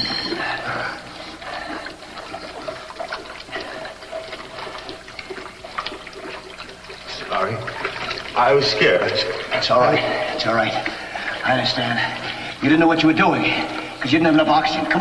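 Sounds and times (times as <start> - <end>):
water splashing and trickling: 0.0 - 15.0.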